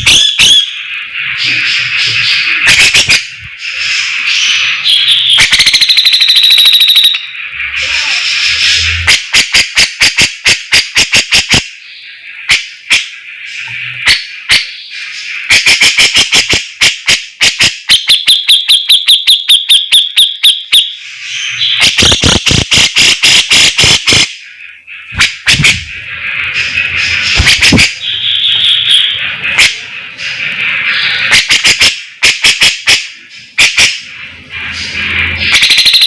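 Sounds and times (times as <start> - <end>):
songbird singing: 0.0 - 9.0, 23.6 - 31.4.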